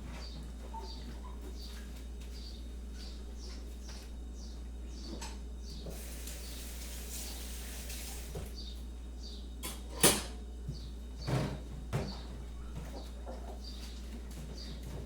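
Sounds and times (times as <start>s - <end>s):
steady low hum: 0.0s - 15.0s
small birds chirping: 0.1s - 7.5s, 8.1s - 9.6s, 12.0s - 15.0s.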